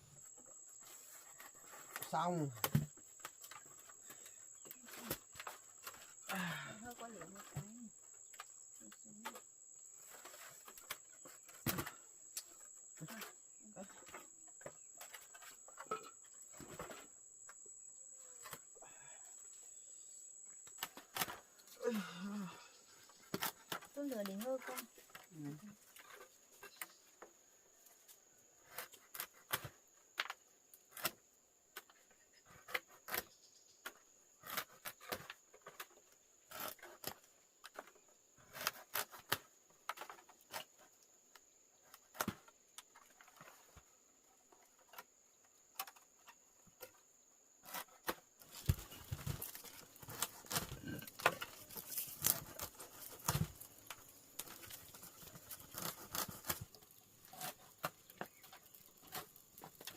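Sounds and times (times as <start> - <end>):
fire crackling and popping: 48.4 - 59.9.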